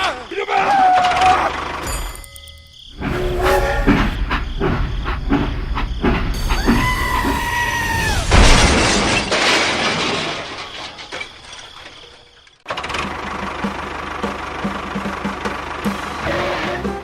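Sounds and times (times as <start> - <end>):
held tone: 1.9 - 4.6
rhythmic machine-like sound: 3.0 - 6.8
loud crash: 3.0 - 12.1.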